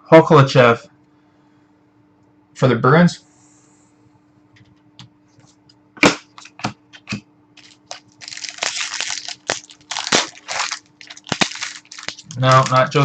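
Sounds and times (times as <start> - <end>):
cards snapping: 6.0 - 13.0
foil wrapper crinkling: 6.3 - 13.0.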